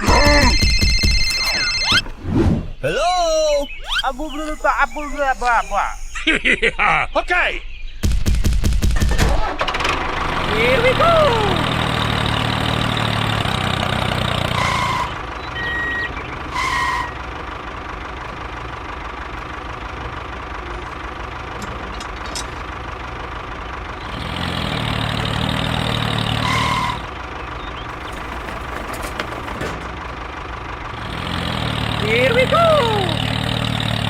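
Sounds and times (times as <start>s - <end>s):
tractor engine running: 0.0s - 2.2s, 8.1s - 34.0s
short high beeps: 0.1s - 2.1s, 3.5s - 6.3s.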